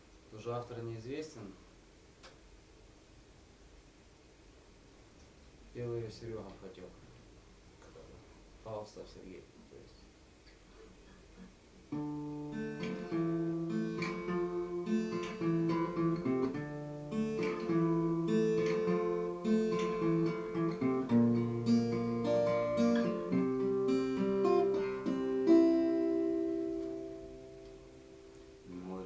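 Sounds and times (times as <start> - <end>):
acoustic guitar chords: 10.8 - 29.0.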